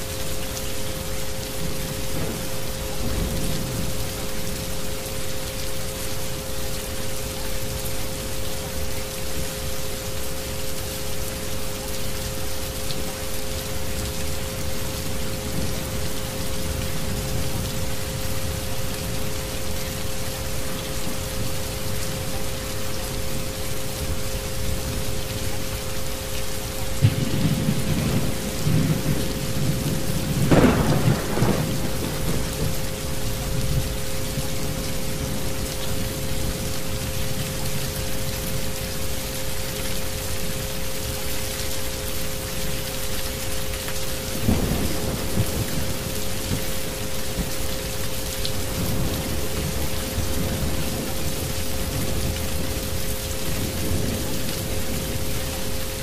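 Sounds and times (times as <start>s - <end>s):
steady rain: 0.0s - 56.0s
thunder rumbling and cracking: 2.0s - 4.6s, 27.0s - 36.6s, 44.3s - 46.7s, 48.6s - 56.0s.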